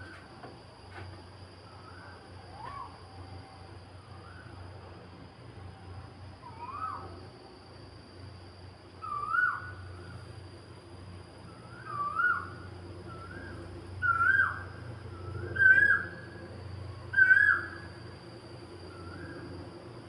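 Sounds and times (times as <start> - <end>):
bird calling: 13.2 - 14.6, 15.2 - 16.3, 17.1 - 17.9.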